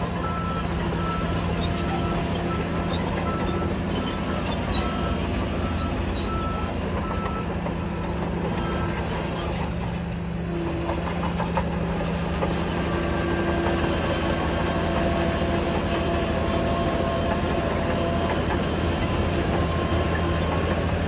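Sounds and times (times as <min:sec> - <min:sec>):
bulldozer diesel engine running: 0:00.0 - 0:21.0
steel tracks clattering: 0:00.0 - 0:21.0.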